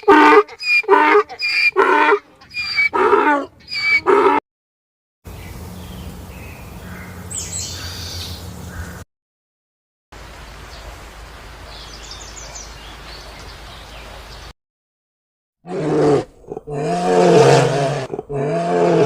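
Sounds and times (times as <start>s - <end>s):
animal calling loudly: 0.0s - 4.4s.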